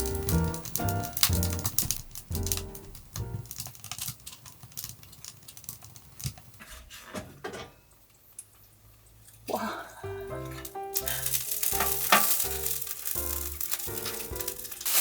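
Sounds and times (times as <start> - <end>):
faint background music: 0.0 - 3.5, 9.5 - 15.0.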